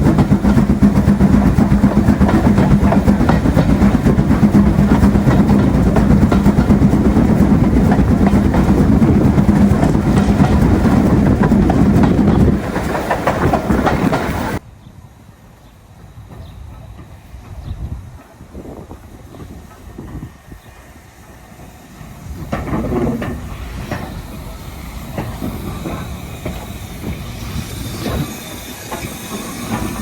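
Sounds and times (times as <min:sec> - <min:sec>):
rail clatter: 0:00.0 - 0:14.6, 0:22.0 - 0:30.0
train rumble: 0:00.0 - 0:14.7, 0:15.3 - 0:30.0.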